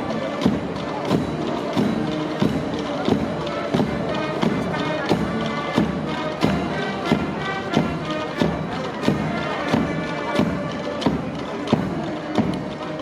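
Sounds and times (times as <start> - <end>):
drum beat: 0.0 - 13.0
wind instrument chords: 0.0 - 13.0.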